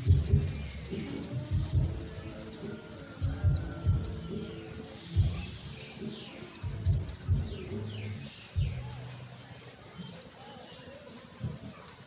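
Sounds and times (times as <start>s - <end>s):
low thumps: 0.0s - 9.0s
small birds chirping: 0.0s - 12.0s.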